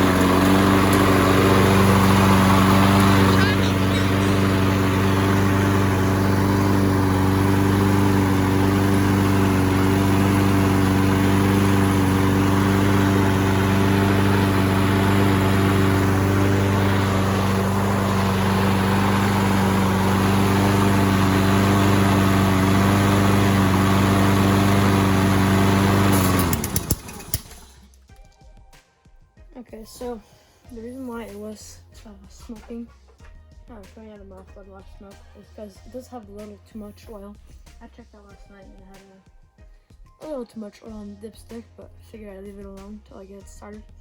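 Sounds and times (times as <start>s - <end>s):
lawn mower engine running: 0.0s - 27.8s.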